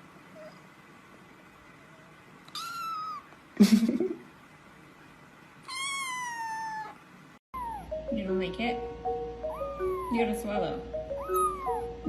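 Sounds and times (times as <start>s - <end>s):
cat meowing: 2.5s - 3.3s, 5.6s - 7.0s, 7.6s - 7.9s, 9.5s - 10.3s, 11.1s - 11.9s.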